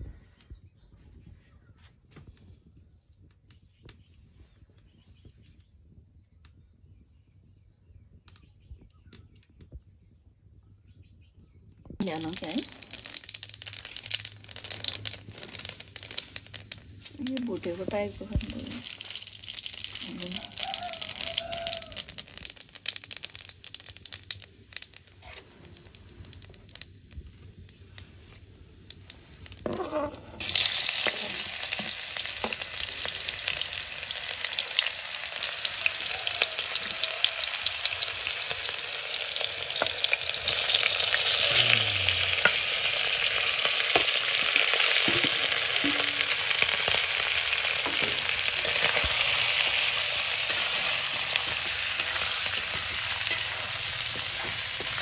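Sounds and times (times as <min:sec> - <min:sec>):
chicken frying: 0:12.0 - 0:55.0
oil crackling in a wok: 0:12.0 - 0:55.0
onion sizzling in hot oil: 0:12.0 - 0:55.0.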